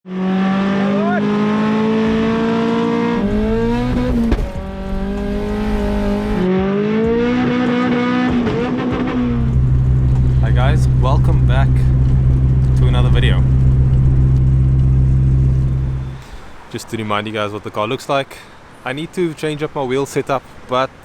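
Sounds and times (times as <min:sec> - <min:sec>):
turbocharged engine accelerating: 0:00.1 - 0:16.2.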